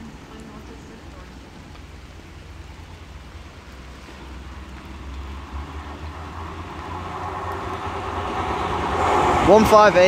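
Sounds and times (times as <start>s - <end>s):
diesel train rumbling: 4.0s - 10.0s.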